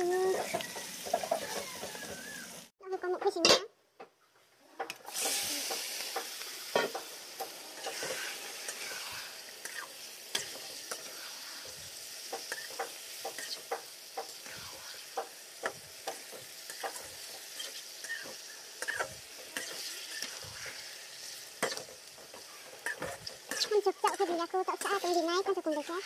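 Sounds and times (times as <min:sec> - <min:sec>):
meat sizzling in oil: 0:00.0 - 0:02.7, 0:05.1 - 0:26.0
metal spatula scraping pan: 0:07.7 - 0:11.7, 0:16.7 - 0:26.0.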